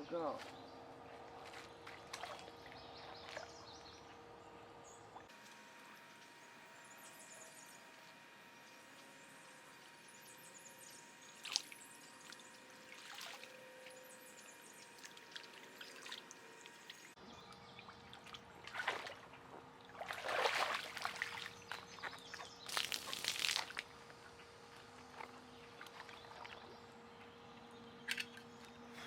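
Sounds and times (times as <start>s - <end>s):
water splashing into a container: 11.4s - 13.5s, 19.9s - 21.5s, 22.7s - 23.9s.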